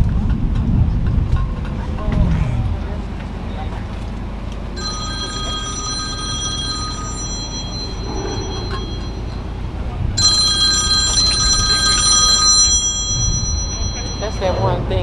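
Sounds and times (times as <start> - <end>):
low background rumble: 0.0 - 15.0
high-pitched electronic ringing tone: 4.8 - 15.0.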